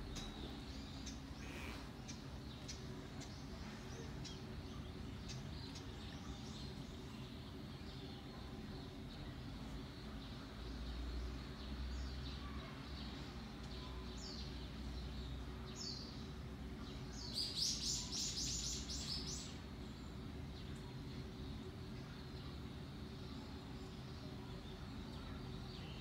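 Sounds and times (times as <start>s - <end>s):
songbird calling: 0.0s - 6.5s, 17.0s - 19.6s
low background hum: 0.0s - 26.0s.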